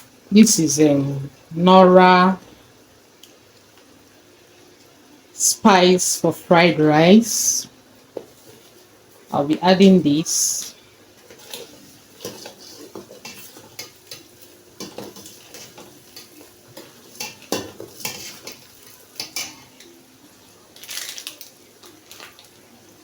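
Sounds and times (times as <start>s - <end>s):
light frying sizzle: 0.0s - 23.0s
spoon scraping a pot: 11.3s - 19.6s.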